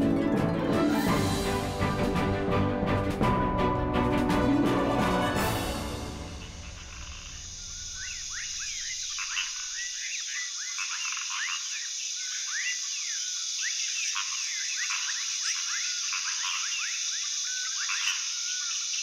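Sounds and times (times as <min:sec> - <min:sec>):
low music: 0:00.0 - 0:07.8
high insect-like hiss: 0:05.5 - 0:19.0
chirping wildlife calls: 0:06.4 - 0:19.0.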